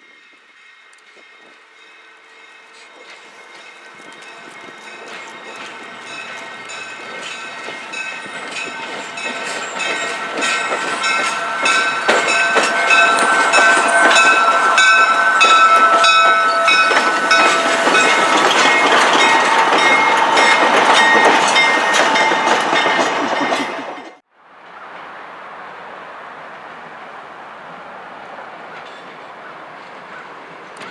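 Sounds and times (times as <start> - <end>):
train wheels clicking over rails: 0.1 - 24.2
high-pitched ringing tones: 3.5 - 20.5.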